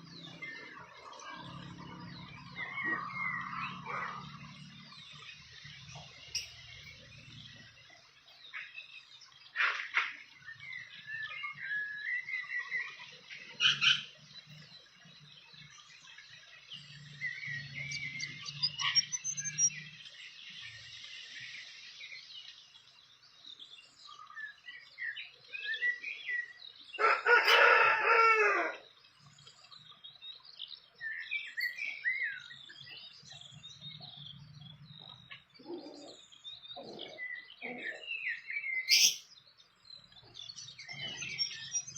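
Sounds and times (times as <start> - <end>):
small birds chirping: 0.0 - 41.9
rooster crowing: 27.0 - 28.9.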